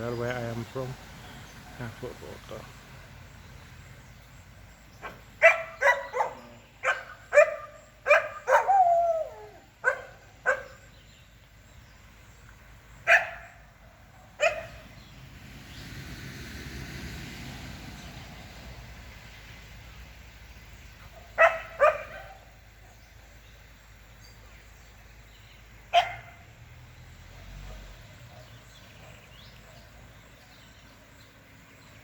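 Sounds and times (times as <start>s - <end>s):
dog barking: 5.0s - 10.8s, 13.1s - 13.6s, 14.4s - 14.8s, 21.1s - 22.5s, 25.9s - 26.4s.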